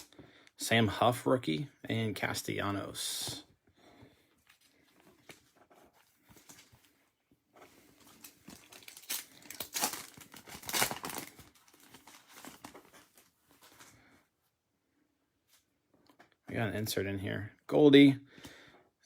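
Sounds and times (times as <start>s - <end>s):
foil wrapper tearing and crinkling: 8.0s - 13.3s.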